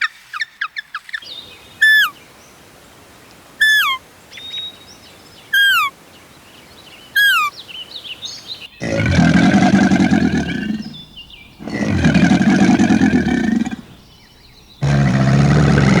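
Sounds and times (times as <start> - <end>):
bird twittering: 0.7 - 2.2, 3.6 - 5.9, 6.5 - 15.4
bird whistled call: 1.2 - 2.2, 3.6 - 4.7, 5.5 - 5.9, 7.2 - 7.6
deep animal calls: 8.8 - 16.0.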